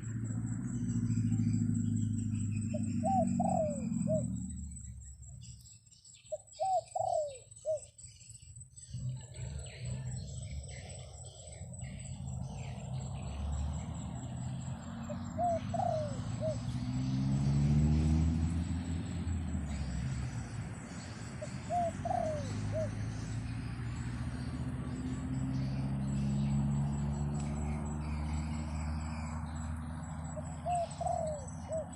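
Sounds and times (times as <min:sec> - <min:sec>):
dove cooing: 0:02.4 - 0:04.6, 0:06.3 - 0:07.9, 0:14.3 - 0:17.2, 0:19.7 - 0:23.4, 0:30.3 - 0:31.9.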